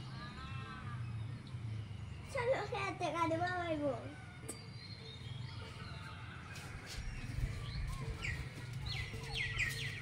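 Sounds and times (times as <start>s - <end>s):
bird chirping rapidly: 7.1s - 10.0s.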